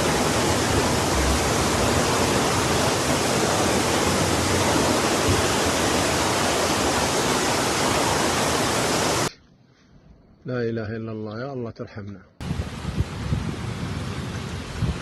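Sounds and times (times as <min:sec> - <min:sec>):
heavy rain: 0:00.0 - 0:09.3, 0:12.4 - 0:15.0
rushing floodwater: 0:00.0 - 0:09.3.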